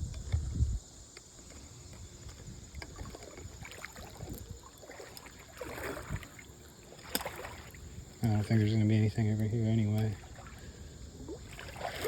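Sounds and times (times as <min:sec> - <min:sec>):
feet splashing through water: 0:02.8 - 0:08.1, 0:10.0 - 0:12.0.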